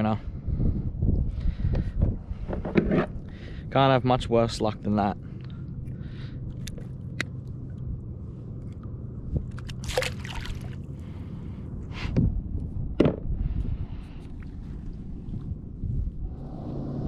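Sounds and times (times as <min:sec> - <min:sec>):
water sloshing around kayak: 0:09.5 - 0:10.9.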